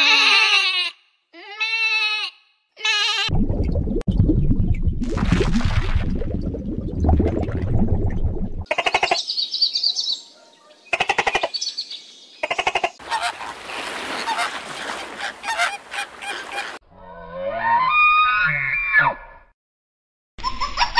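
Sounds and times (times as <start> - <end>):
birds honking: 12.4 - 16.8.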